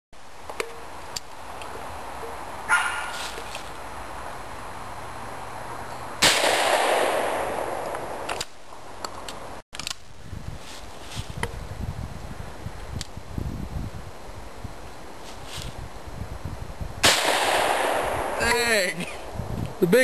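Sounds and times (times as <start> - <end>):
gunshot with echo: 6.2 - 8.2, 17.0 - 18.4.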